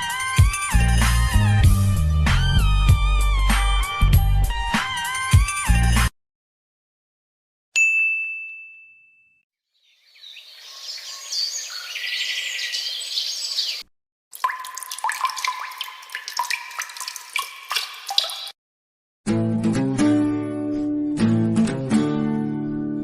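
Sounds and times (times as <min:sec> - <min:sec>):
high bell ding: 0:07.8 - 0:09.4
birds chirping: 0:09.8 - 0:13.9, 0:14.5 - 0:18.5.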